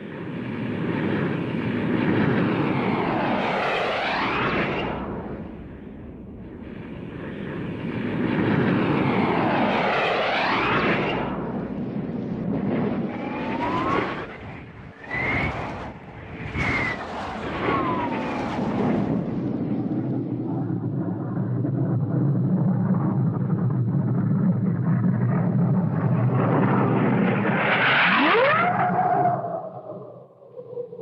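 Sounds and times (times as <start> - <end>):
spaceship fly-by whoosh: 1.9 - 20.4
rising and falling whistle: 13.2 - 18.4, 27.8 - 30.6.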